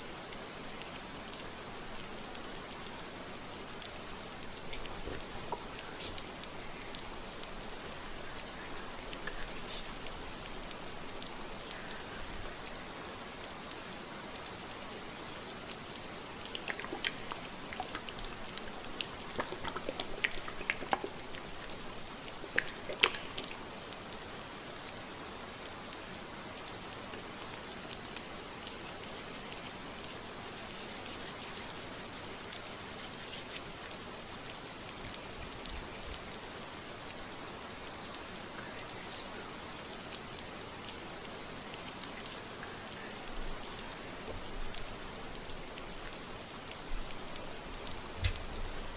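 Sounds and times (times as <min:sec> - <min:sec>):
steady rain: 0:00.0 - 0:48.9
fingers rustling through hair: 0:27.1 - 0:34.6.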